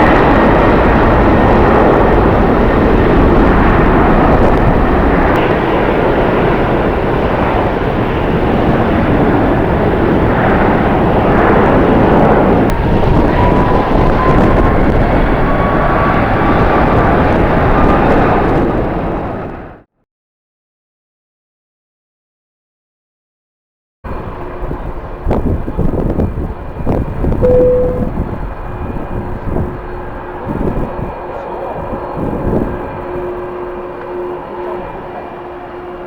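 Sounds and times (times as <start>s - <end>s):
wind on microphone: 0.0s - 19.6s, 24.1s - 33.6s
jet airliner engine noise: 0.0s - 19.9s, 24.1s - 36.0s
faint rising whine: 27.4s - 28.2s.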